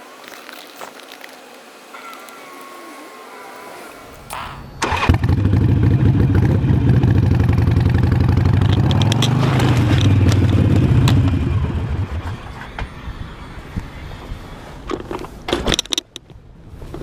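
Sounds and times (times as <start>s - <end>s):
motorcycle engine running: 4.3s - 12.4s.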